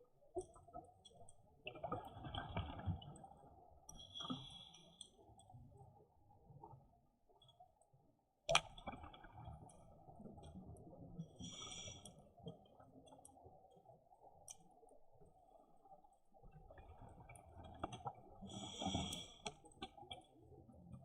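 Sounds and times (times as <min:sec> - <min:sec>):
faint underwater clicks and crackles: 0:00.0 - 0:21.0
regulator breathing and bubbles: 0:16.9 - 0:19.9.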